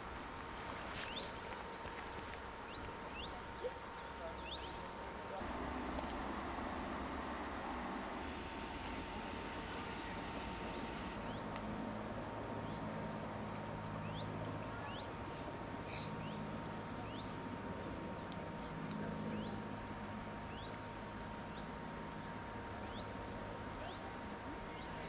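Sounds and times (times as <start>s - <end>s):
small birds chirping: 0.0s - 12.0s, 12.6s - 19.8s, 20.4s - 25.0s
steady low hum: 0.0s - 25.0s
faint thin steady tone: 3.0s - 11.3s.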